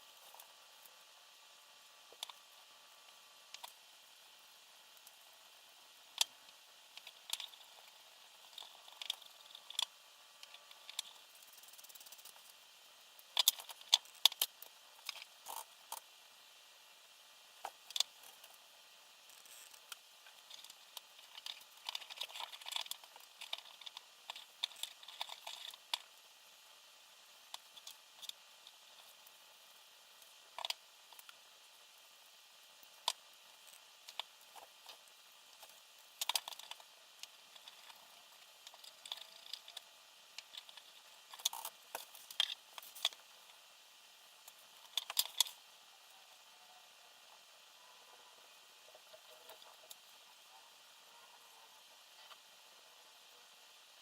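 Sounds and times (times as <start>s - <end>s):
small plastic parts clicking and rattling: 2.0s - 3.9s, 4.9s - 16.2s, 17.6s - 46.4s.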